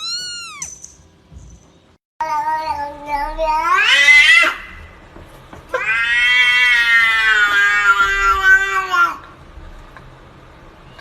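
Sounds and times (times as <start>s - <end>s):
cat yowling: 0.0s - 0.8s, 2.2s - 5.0s, 5.7s - 9.3s.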